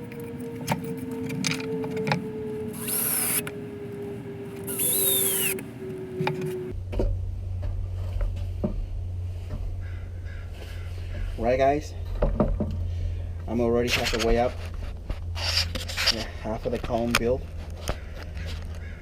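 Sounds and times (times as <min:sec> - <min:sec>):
low hum: 0:00.0 - 0:11.3
power tool bursts: 0:02.7 - 0:03.5, 0:04.6 - 0:05.6.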